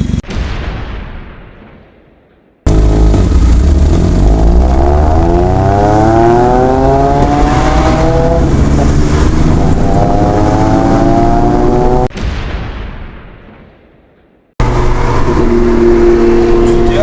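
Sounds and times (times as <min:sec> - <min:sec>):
truck engine accelerating: 0:02.7 - 0:12.1, 0:14.6 - 0:17.0.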